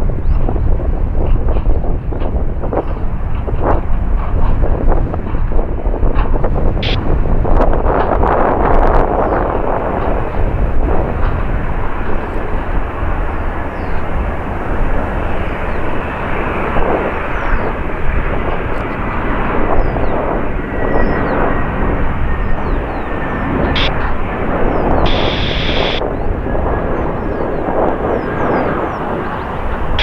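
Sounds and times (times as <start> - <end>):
jet engines rumbling: 0.0 - 30.0
faint high whine: 9.2 - 30.0.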